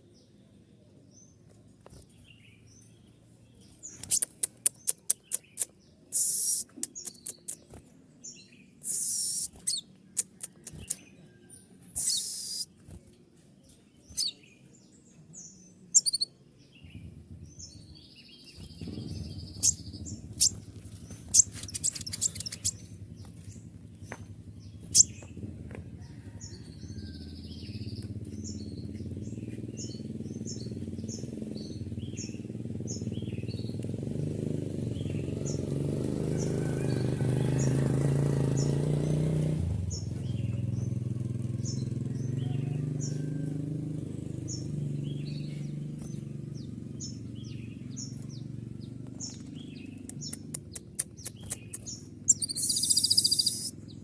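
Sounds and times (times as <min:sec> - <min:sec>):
low engine-like rumble: 0:00.1 - 0:38.7, 0:39.6 - 0:54.0
bird chirping and trilling: 0:03.6 - 0:11.3, 0:11.9 - 0:12.9, 0:14.0 - 0:14.7, 0:15.4 - 0:25.4, 0:49.2 - 0:54.0.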